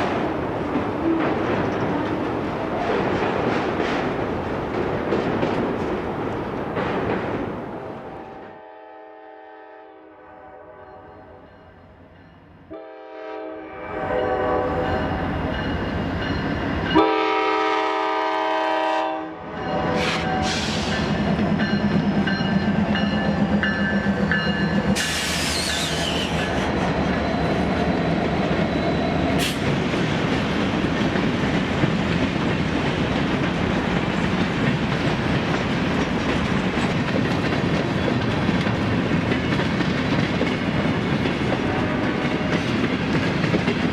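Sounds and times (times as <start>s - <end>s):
train wheels rumbling on rails: 0.0s - 8.8s, 14.3s - 43.9s
train horn blasts: 8.1s - 11.8s, 12.7s - 15.2s, 17.0s - 20.8s, 41.6s - 42.6s
high wheel squeal: 25.0s - 27.7s.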